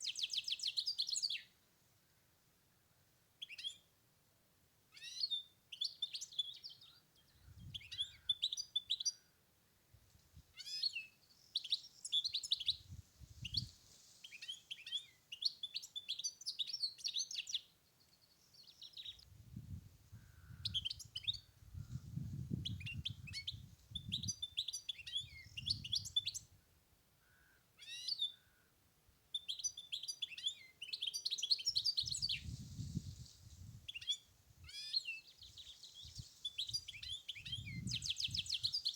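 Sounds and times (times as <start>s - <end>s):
finch singing: 29.3s - 32.6s, 33.9s - 38.9s.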